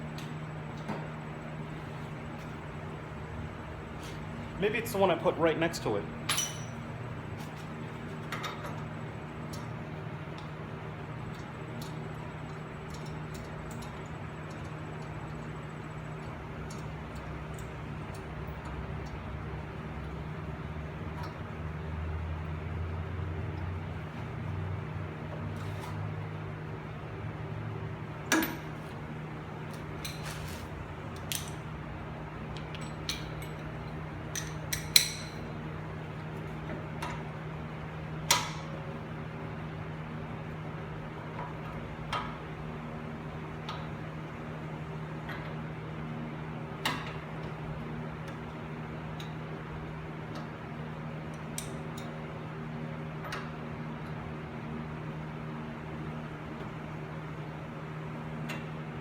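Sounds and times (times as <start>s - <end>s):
steady low hum: 0.0s - 59.0s
wrench clinking on metal: 6.3s - 6.8s.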